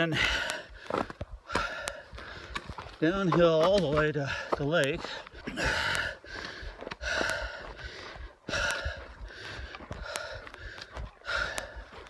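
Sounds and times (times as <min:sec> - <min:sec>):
person breathing heavily: 0:00.0 - 0:03.3, 0:03.9 - 0:12.0
faint sharp clicks: 0:01.8 - 0:02.0, 0:11.4 - 0:11.7.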